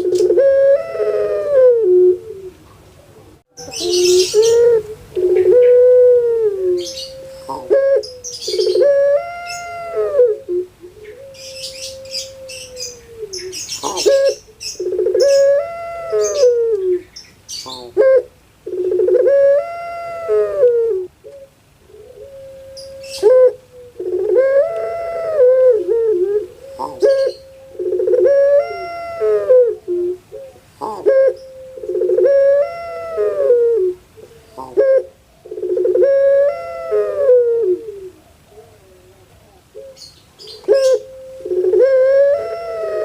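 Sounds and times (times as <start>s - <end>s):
dove cooing: 0.0s - 43.0s
small birds chirping: 2.6s - 5.8s, 6.8s - 9.8s, 10.8s - 18.0s, 26.4s - 28.9s, 38.1s - 41.8s.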